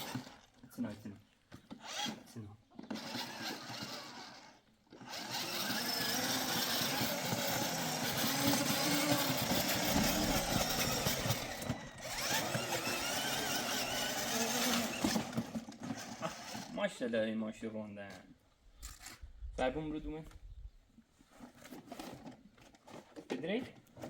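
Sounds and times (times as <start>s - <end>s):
vehicle engine driving: 6.8s - 15.0s.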